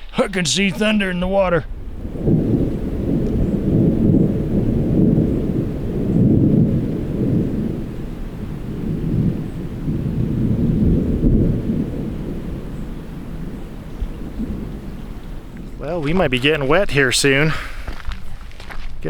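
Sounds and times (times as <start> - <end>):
thunder rumbling: 0.0 - 16.9.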